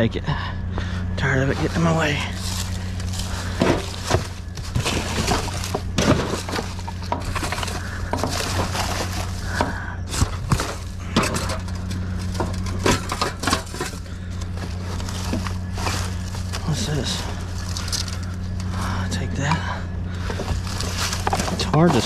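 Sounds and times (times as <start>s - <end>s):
steady low hum: 0.0s - 22.0s
debris knocking and clattering: 1.6s - 22.0s.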